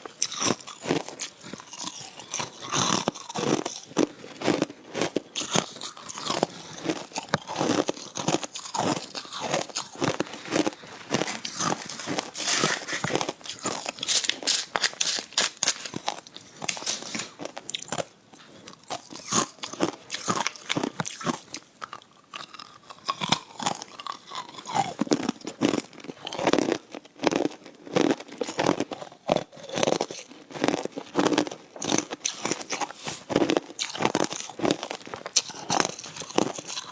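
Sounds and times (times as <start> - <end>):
ice being chewed: 0.0 - 36.9.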